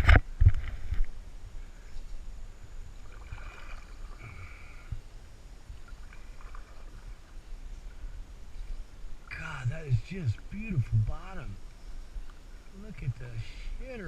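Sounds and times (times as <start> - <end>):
wind rumble on microphone: 0.0 - 4.3
water lapping against canoe hull: 3.0 - 5.0, 5.7 - 13.2.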